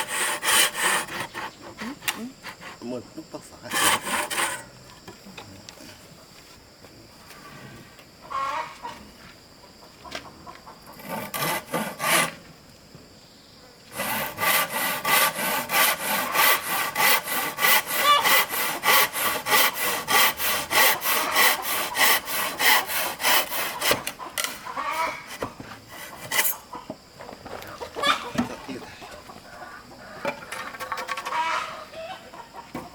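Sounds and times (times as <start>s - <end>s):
hand saw cutting wood: 0.0s - 2.9s, 3.7s - 4.7s, 10.9s - 12.4s, 13.9s - 26.7s.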